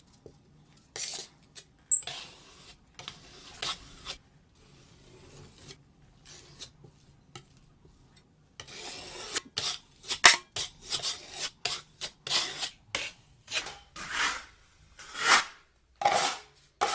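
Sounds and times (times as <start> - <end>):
hand tool scraping drywall: 8.6 - 16.9.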